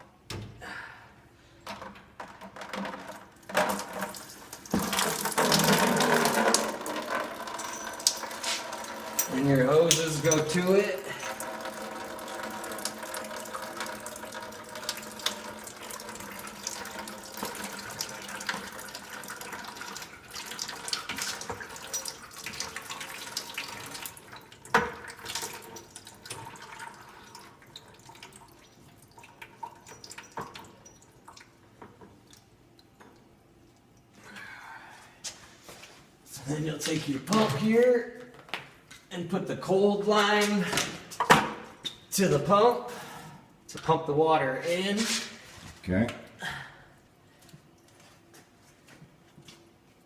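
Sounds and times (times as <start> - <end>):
water running from valve ports: 3.6 - 34.1.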